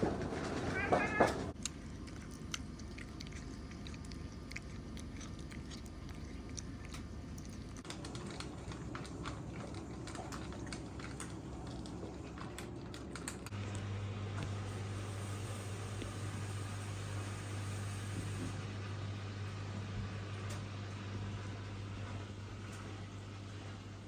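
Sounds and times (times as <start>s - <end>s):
cat chewing with crunching: 0.0s - 13.6s.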